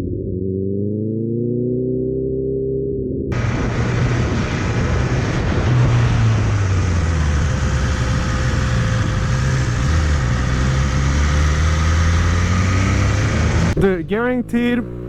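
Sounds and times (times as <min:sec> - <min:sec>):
wind and road noise: 0:00.0 - 0:15.0
motorcycle engine running: 0:03.3 - 0:15.0.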